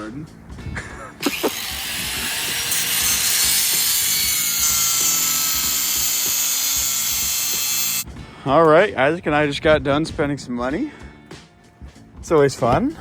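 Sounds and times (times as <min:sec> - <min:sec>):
power tool grinding metal: 0:01.2 - 0:08.0.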